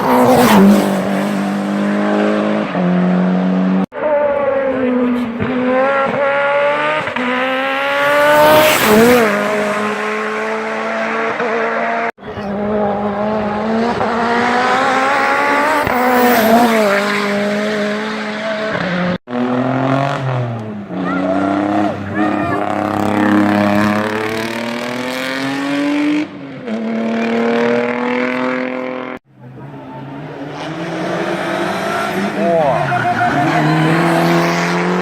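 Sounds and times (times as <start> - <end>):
racing car engines revving: 0.0 - 35.0.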